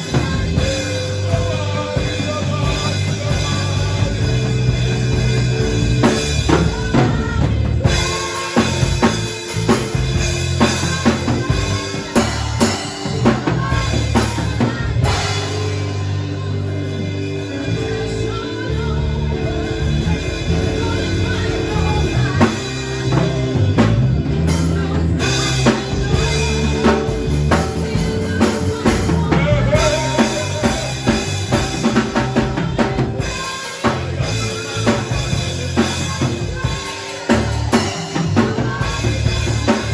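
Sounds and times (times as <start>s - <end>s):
bass line: 0.0s - 39.9s
drum kit music: 0.0s - 39.9s.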